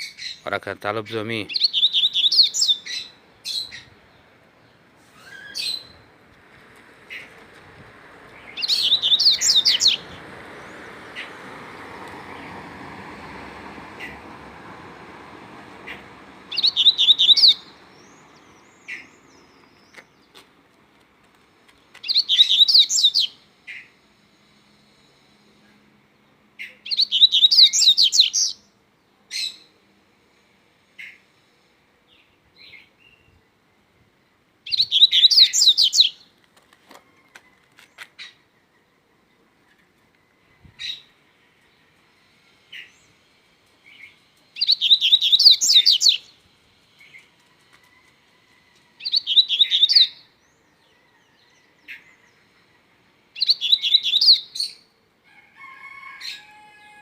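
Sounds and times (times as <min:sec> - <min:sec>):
bird twittering song: 0:01.1 - 0:06.1, 0:08.3 - 0:12.6, 0:15.8 - 0:20.5, 0:21.7 - 0:23.9, 0:26.2 - 0:28.8, 0:34.6 - 0:36.3, 0:43.8 - 0:47.4, 0:49.0 - 0:54.9.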